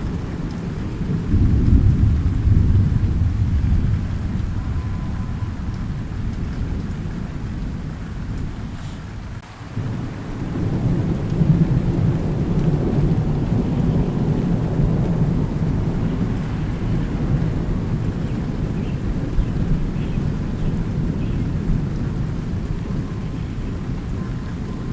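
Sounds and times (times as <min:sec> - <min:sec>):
low rolling thunder: 0:00.0 - 0:24.9
steady rain: 0:00.0 - 0:24.9.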